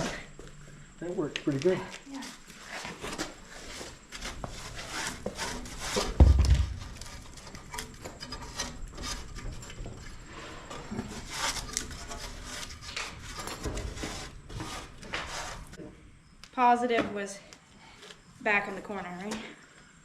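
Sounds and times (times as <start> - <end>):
rubbing and scraping on metal and wood: 1.7 - 15.8
heavy thud: 6.1 - 7.1.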